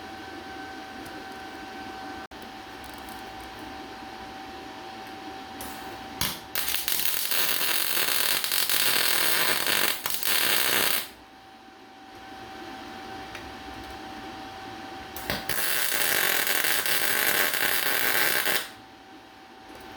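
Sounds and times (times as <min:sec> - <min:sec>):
steady background hum: 0:00.0 - 0:19.9
welding arc crackling and hissing: 0:05.6 - 0:11.2, 0:15.2 - 0:18.8.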